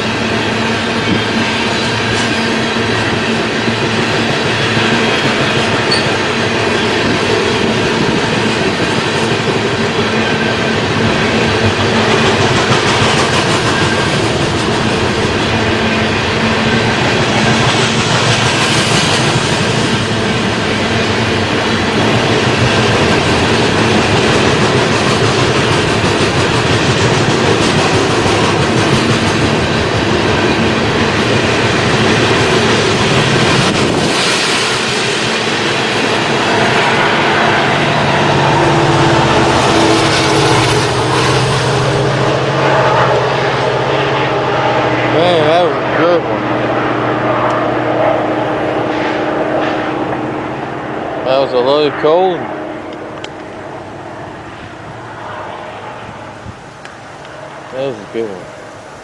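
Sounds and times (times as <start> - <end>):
train cars rolling on rails: 0.0 - 59.0.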